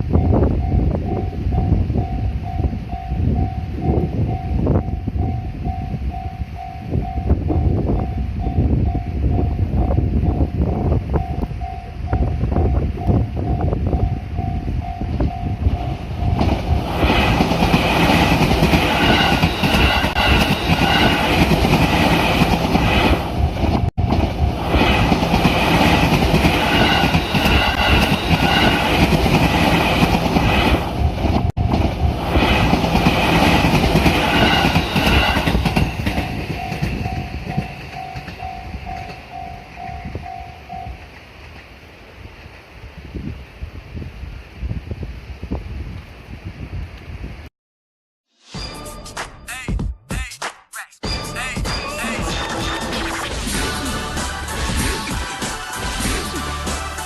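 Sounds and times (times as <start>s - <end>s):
level-crossing warning bell: 0.0s - 16.8s, 34.2s - 41.1s, 51.0s - 52.5s
train wheels clattering on rails: 16.2s - 41.7s.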